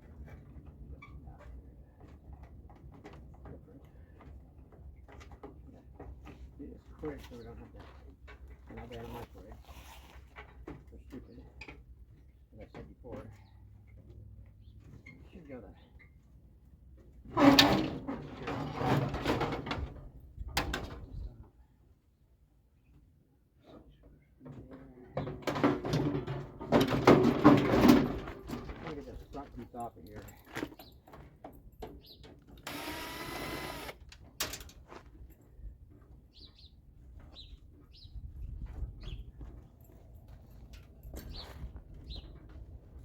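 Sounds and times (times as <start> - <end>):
metal parts rattling and scraping: 17.4 - 20.0, 25.4 - 29.1.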